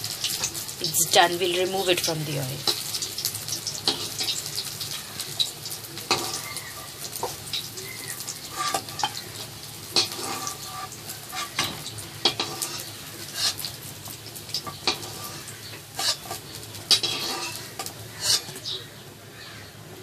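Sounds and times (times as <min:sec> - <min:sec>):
food sizzling in hot oil: 0:00.0 - 0:19.4
utensil scraping and clinking pan: 0:06.1 - 0:07.4, 0:08.4 - 0:13.8, 0:14.5 - 0:18.8.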